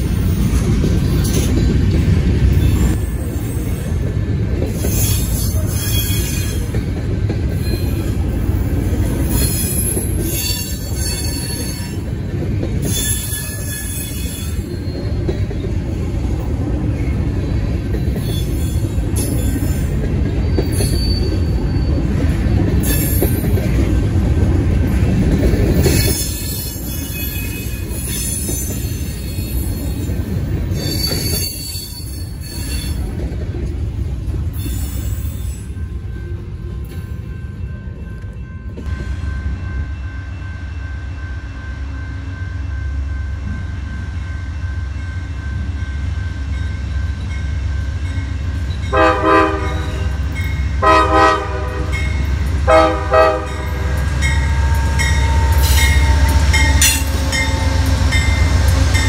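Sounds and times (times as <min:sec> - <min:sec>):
steel wheels rumbling on rail: 0:00.0 - 0:59.0
high-pitched wheel squeal: 0:20.4 - 0:22.0.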